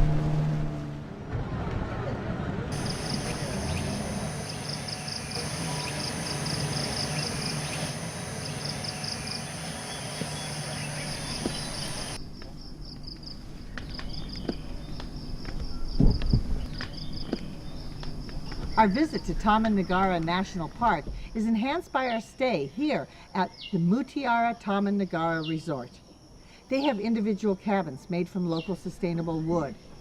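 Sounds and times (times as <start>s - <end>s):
low rumble: 0.0s - 4.3s
high insect drone: 2.7s - 22.0s
insects chirring in pulsing trill: 2.8s - 27.6s
dull low thump: 15.9s - 16.6s.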